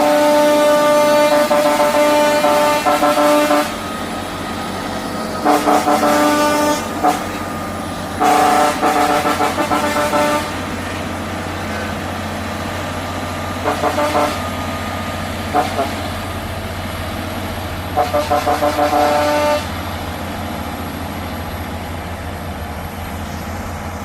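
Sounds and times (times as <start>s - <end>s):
truck horn blasts: 0.0s - 4.2s, 5.4s - 12.2s, 13.6s - 14.8s, 15.5s - 16.4s, 17.9s - 19.9s
truck diesel engine running: 0.0s - 24.0s.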